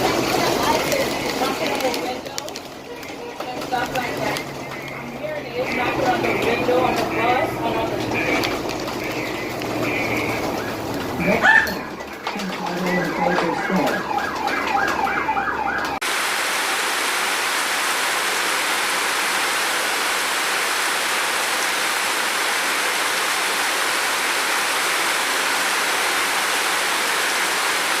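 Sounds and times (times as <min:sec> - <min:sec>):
heavy rain falling: 0:00.0 - 0:28.0
rapid rising and falling call: 0:08.0 - 0:12.0.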